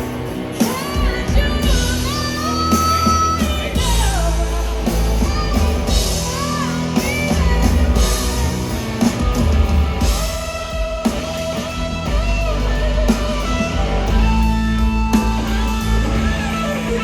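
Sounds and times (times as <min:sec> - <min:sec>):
blues-rock band playing: 0:00.0 - 0:17.0
woman singing: 0:00.4 - 0:11.5.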